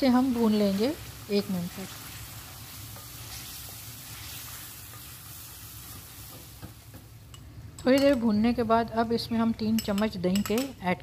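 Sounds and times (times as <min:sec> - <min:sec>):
gravy sizzling in a metal pan: 0:00.0 - 0:08.2.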